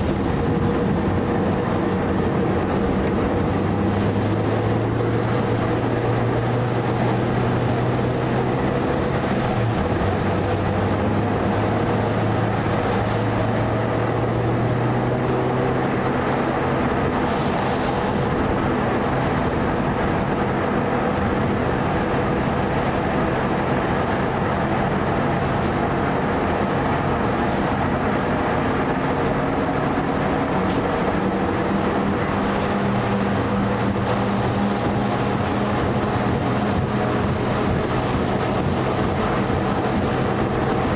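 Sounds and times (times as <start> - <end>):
car engine running hard: 0.0 - 40.9
road noise: 0.0 - 40.9.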